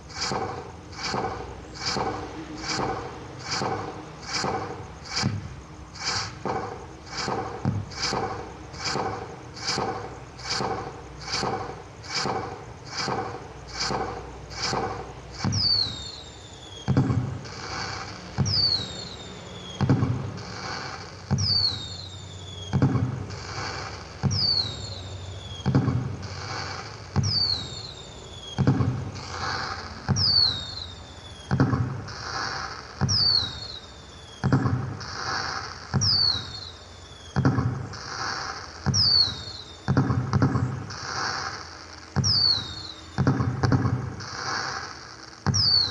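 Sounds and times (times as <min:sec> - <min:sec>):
firecracker pops: 0:00.2 - 0:05.4, 0:16.9 - 0:18.8, 0:19.8 - 0:21.8, 0:22.7 - 0:23.2, 0:24.2 - 0:24.7, 0:25.6 - 0:26.6, 0:27.2 - 0:27.6, 0:28.5 - 0:29.1, 0:31.5 - 0:33.6, 0:34.4 - 0:36.5, 0:37.4 - 0:41.6, 0:42.2 - 0:44.8, 0:45.4 - 0:45.9
firecracker bang: 0:00.2 - 0:16.2, 0:16.8 - 0:19.2, 0:19.8 - 0:22.0, 0:22.7 - 0:24.7, 0:25.6 - 0:27.8, 0:28.5 - 0:30.8, 0:31.4 - 0:33.6, 0:34.4 - 0:36.6
falling whistle: 0:15.4 - 0:22.8, 0:23.7 - 0:25.8, 0:26.7 - 0:31.6, 0:32.5 - 0:40.0, 0:42.2 - 0:43.4, 0:45.5 - 0:45.9.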